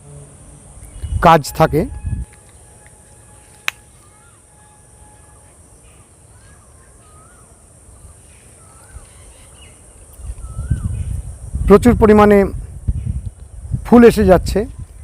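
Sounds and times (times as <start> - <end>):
insects droning: 0.0 - 15.0
birds whistling: 0.6 - 11.4.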